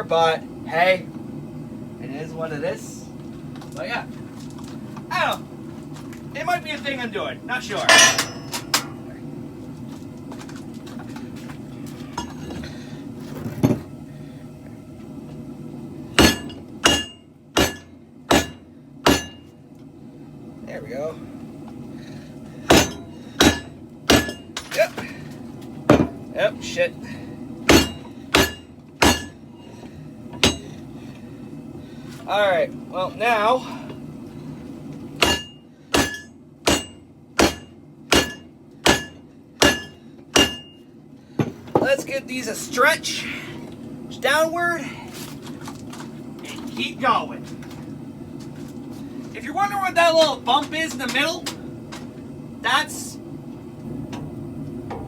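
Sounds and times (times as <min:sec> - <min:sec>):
hammer striking steel on anvil: 0:07.8 - 0:09.0, 0:16.2 - 0:19.5, 0:22.7 - 0:24.6, 0:27.7 - 0:29.4, 0:30.4 - 0:30.7, 0:35.2 - 0:40.8.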